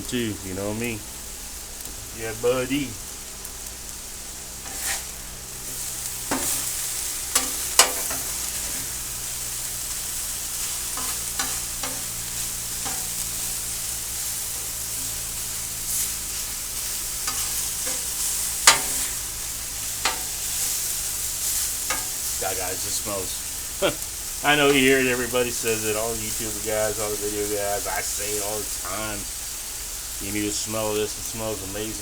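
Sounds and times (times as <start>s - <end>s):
chicken sizzling on a griddle: 0.0s - 32.0s
metal spatula scraping griddle: 4.6s - 22.4s.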